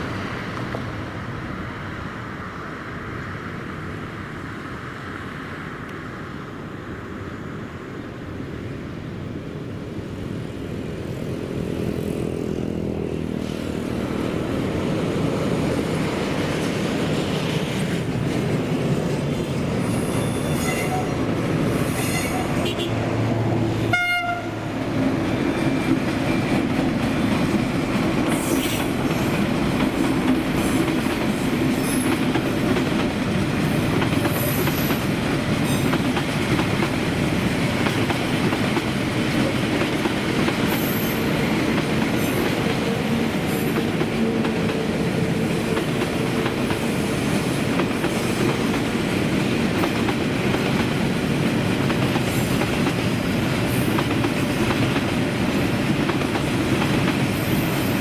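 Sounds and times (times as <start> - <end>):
train wheels clattering on rails: 24.8 - 58.0.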